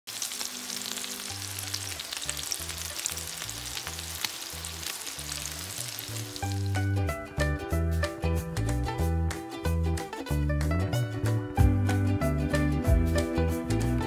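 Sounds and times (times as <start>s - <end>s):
eggplant sizzling in hot oil: 0.1s - 7.0s.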